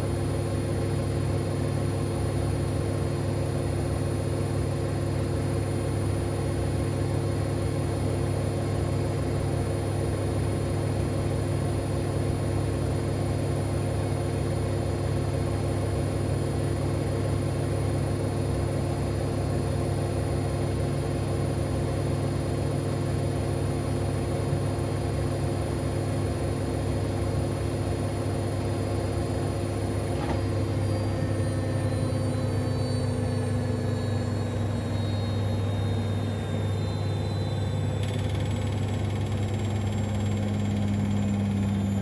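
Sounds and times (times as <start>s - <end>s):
washing machine spinning: 28.1s - 42.0s.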